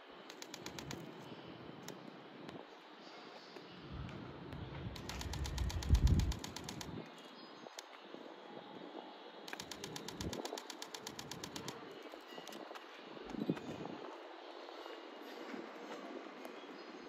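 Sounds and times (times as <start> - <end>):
rapid high ticking: 0.3 - 1.1, 5.0 - 7.0, 9.5 - 11.8.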